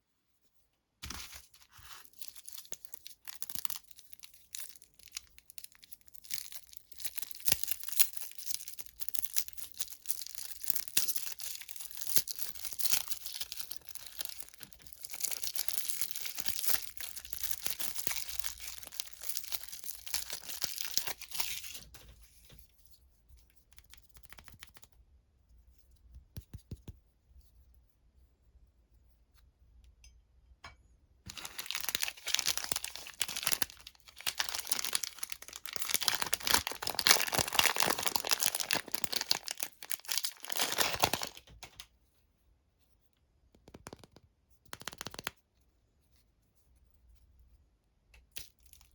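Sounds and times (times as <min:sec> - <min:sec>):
plastic wrapper crinkling: 0:01.0 - 0:22.1, 0:23.8 - 0:24.9, 0:31.3 - 0:41.8, 0:43.7 - 0:45.4.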